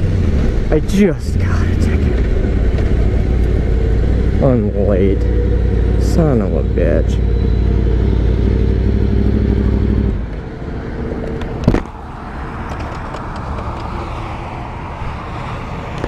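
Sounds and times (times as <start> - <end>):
road and traffic noise: 0.0 - 16.0.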